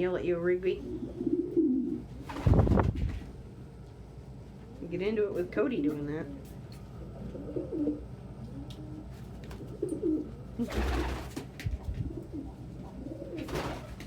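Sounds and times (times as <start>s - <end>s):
pigeons cooing: 0.8s - 2.3s, 6.4s - 14.0s.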